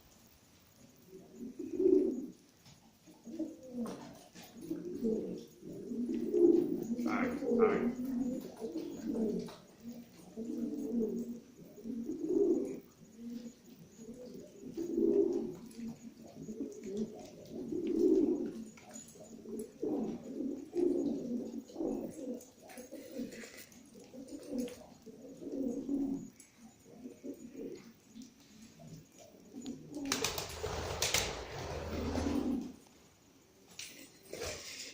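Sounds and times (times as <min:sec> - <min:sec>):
pigeons cooing: 0:00.8 - 0:32.9, 0:33.8 - 0:34.9.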